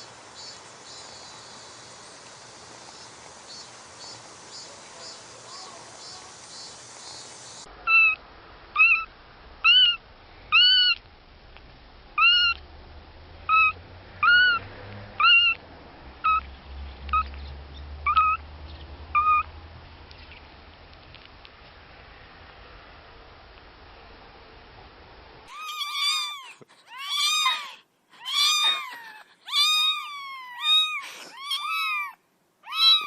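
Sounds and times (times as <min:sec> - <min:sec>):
kitten mewing: 0:08.8 - 0:11.0, 0:12.2 - 0:12.6, 0:15.2 - 0:15.6, 0:25.5 - 0:33.0.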